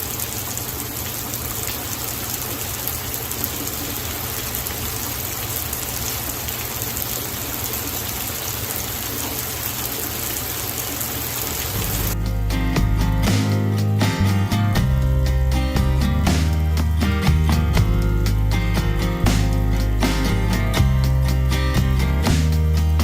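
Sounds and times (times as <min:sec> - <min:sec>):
rain pattering on surfaces: 0:00.0 - 0:12.2
music: 0:12.2 - 0:23.0.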